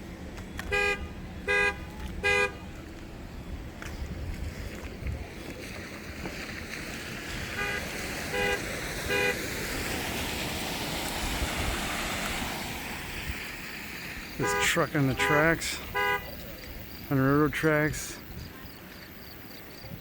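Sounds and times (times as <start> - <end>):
vehicle horn honking: 0.6 - 2.6, 7.5 - 9.4, 14.4 - 16.4
steady rushing noise: 2.8 - 18.3.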